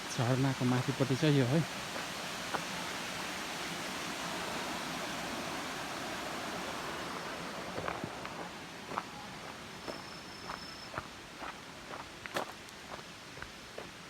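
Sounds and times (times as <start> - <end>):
waterfall rushing: 0.0 - 9.8.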